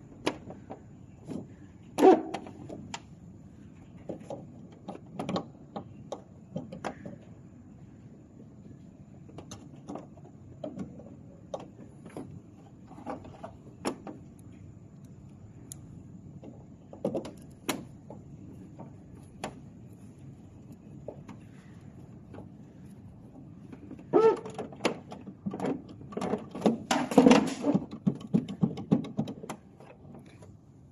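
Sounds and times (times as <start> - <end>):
low steady hum: 0.0 - 30.9
light mechanical clicks and knocks: 8.7 - 30.6.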